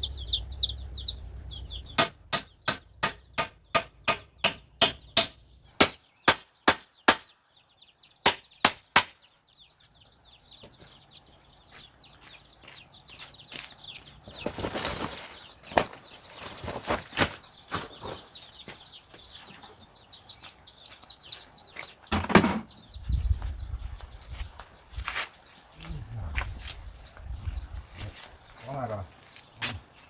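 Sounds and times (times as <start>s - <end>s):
birds chirping: 0.0s - 30.0s
chopping blows on wood: 2.0s - 7.3s
rustle: 23.8s - 30.0s.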